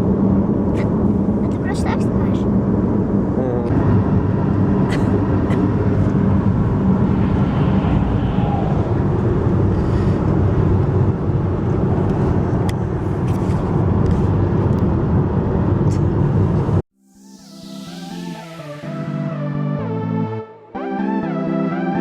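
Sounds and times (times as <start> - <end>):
car road rumble from inside: 0.0 - 16.8
music: 17.0 - 22.0.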